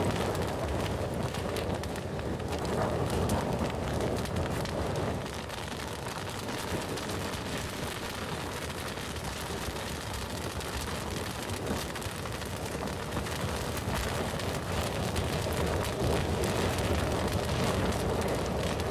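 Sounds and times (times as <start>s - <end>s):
bonfire crackling and popping: 0.0s - 18.9s
low rumble of flame: 0.0s - 18.9s.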